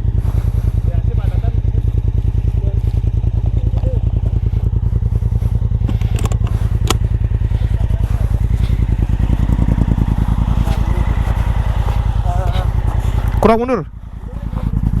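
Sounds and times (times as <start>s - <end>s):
motorcycle engine idling: 0.0s - 15.0s
sharp clicks: 5.8s - 7.1s.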